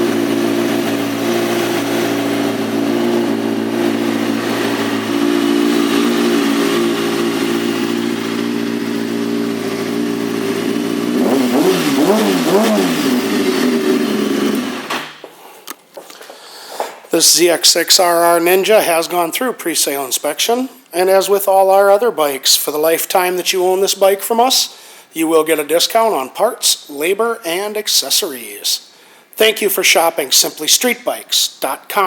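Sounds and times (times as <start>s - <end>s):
motorcycle engine idling and revving: 0.0s - 14.9s.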